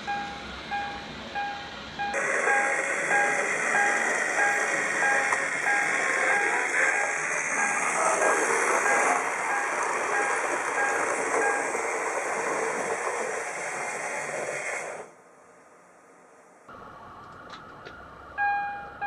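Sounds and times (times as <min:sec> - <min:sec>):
model train rumbling rattle: 0:02.2 - 0:15.1.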